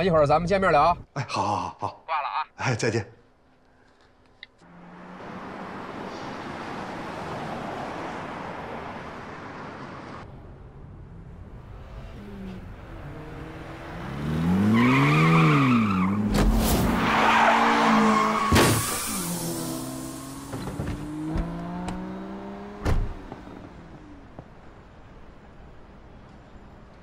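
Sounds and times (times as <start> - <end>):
tyres skidding: 4.5 - 10.3, 11.2 - 27.0
car engine revving: 11.4 - 24.4.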